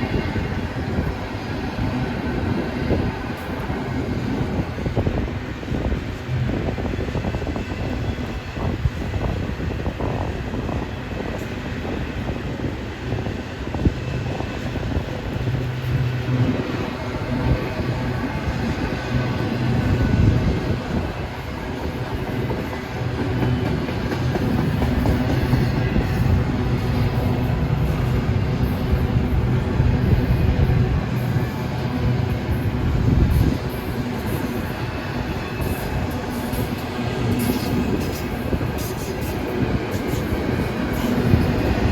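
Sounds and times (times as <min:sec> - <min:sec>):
freight train rumbling past: 0:00.0 - 0:41.9.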